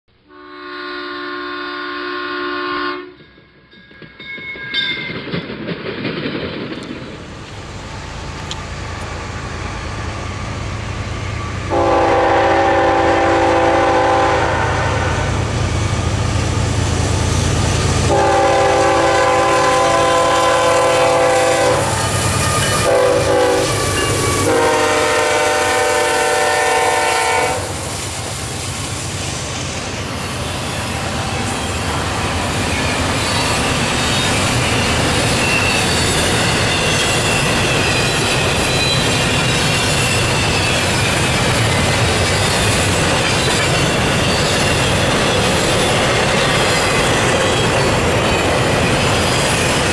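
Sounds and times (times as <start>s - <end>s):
locomotive air horn blasts: 0.2s - 3.2s, 11.7s - 15.4s, 18.0s - 27.9s
diesel locomotives rumbling: 0.3s - 49.9s
train wheels clattering: 3.1s - 9.6s, 16.1s - 49.9s
faint high wheel squeal: 30.1s - 49.9s.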